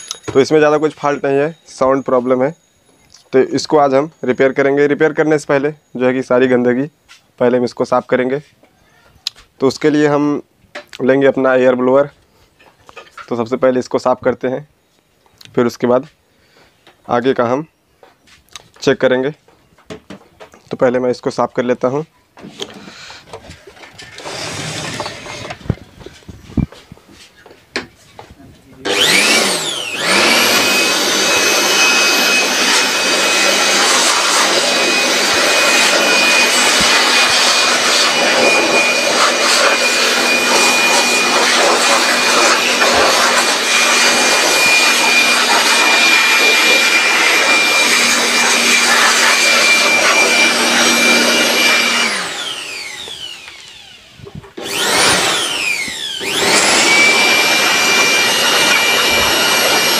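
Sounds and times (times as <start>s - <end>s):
electric air blower whining: 0.0s - 6.5s, 22.4s - 59.9s.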